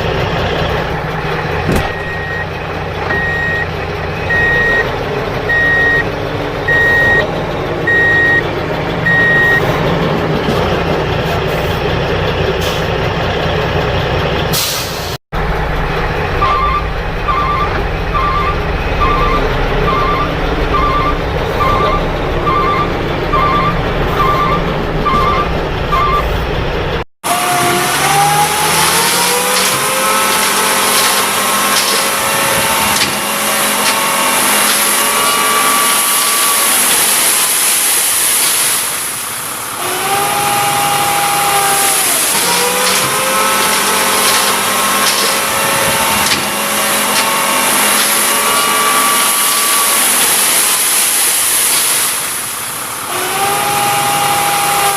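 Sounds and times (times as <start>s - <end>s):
truck engine rumbling and revving: 0.0s - 54.9s
reversing alarm beeps: 2.0s - 2.5s, 3.1s - 4.9s, 5.5s - 6.1s, 6.7s - 7.2s, 7.9s - 8.4s, 9.0s - 9.7s, 16.4s - 26.4s.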